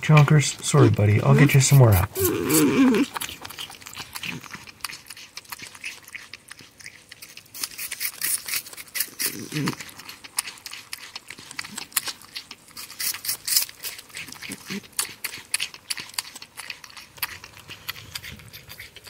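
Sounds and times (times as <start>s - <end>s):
porcupine gnawing food: 0.0s - 19.0s.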